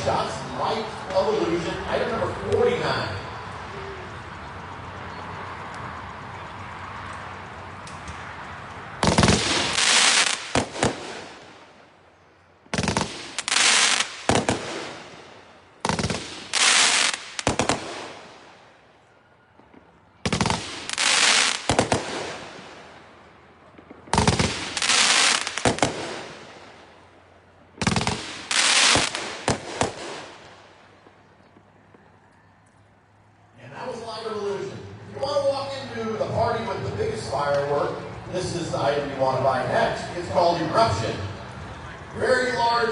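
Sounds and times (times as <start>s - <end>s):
firework bangs: 9.0s - 11.9s, 12.7s - 18.9s, 19.6s - 27.1s, 27.8s - 32.0s.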